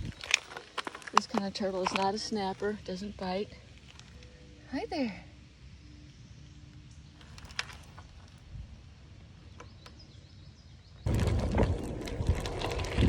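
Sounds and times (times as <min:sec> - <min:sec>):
bicycle tyres crunching on trail: 0:00.0 - 0:04.4, 0:07.1 - 0:08.8, 0:10.6 - 0:13.0.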